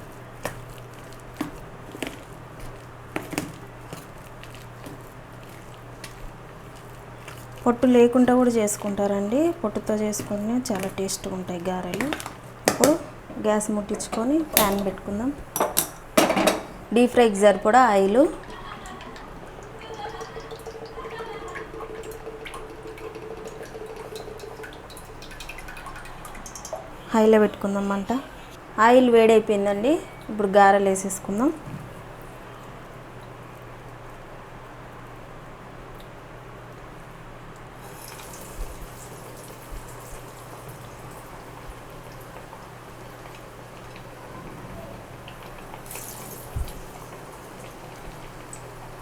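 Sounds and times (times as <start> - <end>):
oil trickling into pan: 0.0 - 16.2, 18.3 - 27.0, 37.8 - 44.4, 45.0 - 49.0.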